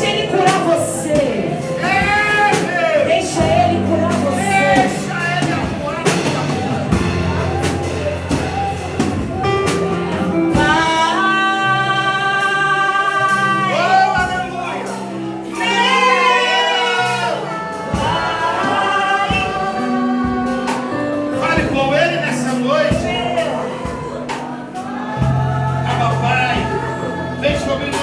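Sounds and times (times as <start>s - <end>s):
instrumental accompaniment: 0.0s - 28.0s.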